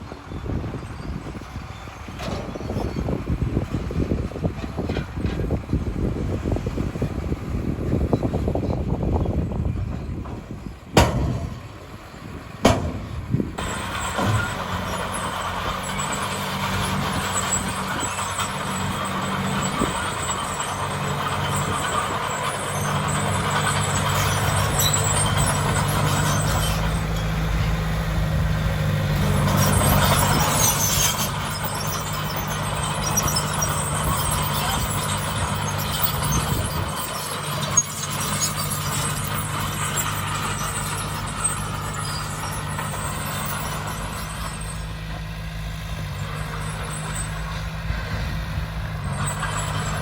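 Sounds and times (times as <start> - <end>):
heavy diesel engine running: 0.0 - 50.0
sharp knocks: 11.0 - 11.8, 12.6 - 13.5.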